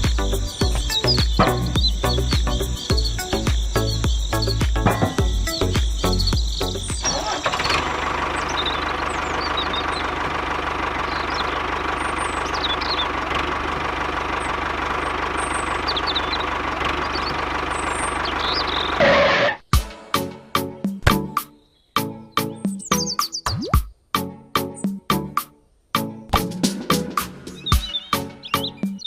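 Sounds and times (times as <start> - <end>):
small engine idling: 0.0 - 19.6
birds chirping faintly: 0.0 - 19.7, 20.8 - 23.8, 27.5 - 29.0.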